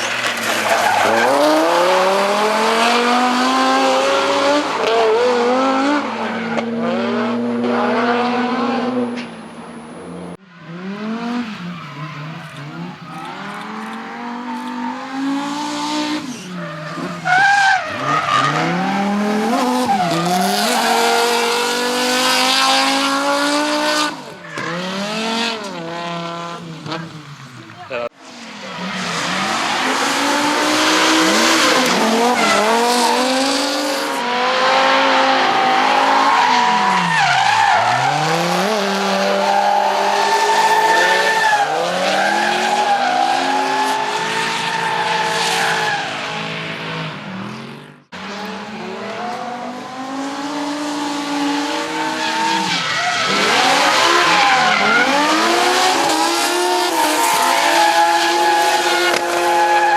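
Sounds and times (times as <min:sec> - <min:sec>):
car engine revving: 0:00.0 - 0:59.9
tyre squeal: 0:11.4 - 0:21.7.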